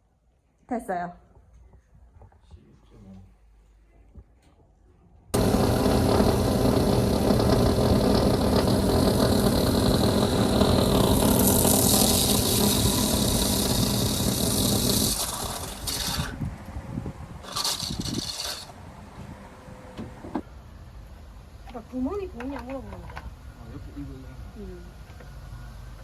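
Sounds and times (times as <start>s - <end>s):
electric drill boring through wall: 5.4s - 16.6s, 17.4s - 20.4s.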